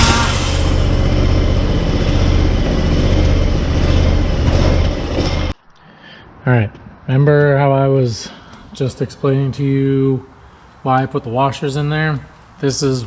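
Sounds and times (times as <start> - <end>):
mower engine running: 0.0 - 5.6.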